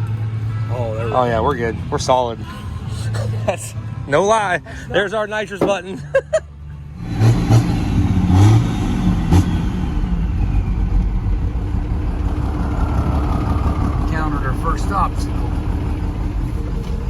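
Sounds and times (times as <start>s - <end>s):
diesel engine revving: 6.9s - 17.0s.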